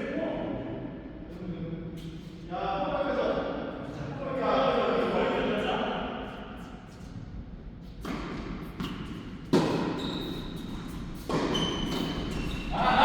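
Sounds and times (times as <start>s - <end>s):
tennis ball bouncing indoors: 7.9s - 12.8s.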